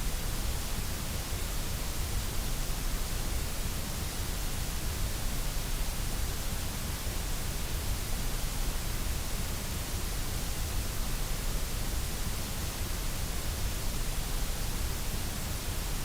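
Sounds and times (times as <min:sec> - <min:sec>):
white noise hiss: 0:00.0 - 0:16.0.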